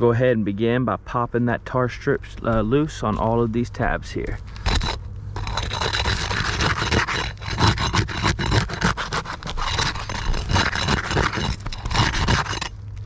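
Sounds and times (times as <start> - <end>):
flat bar scraping shingles: 3.1 - 12.8.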